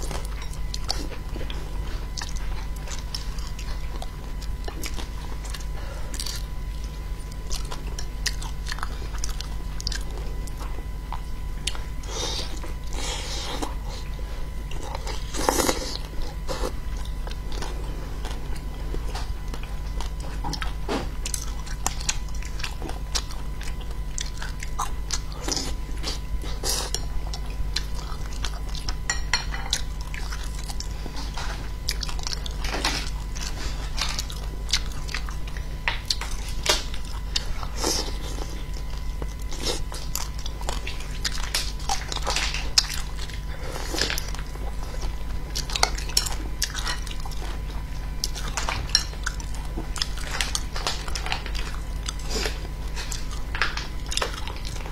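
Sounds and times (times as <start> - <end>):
steady low hum: 0.0 - 54.9
woman chewing: 0.0 - 54.9
chopsticks tapping a bowl: 29.1 - 29.7.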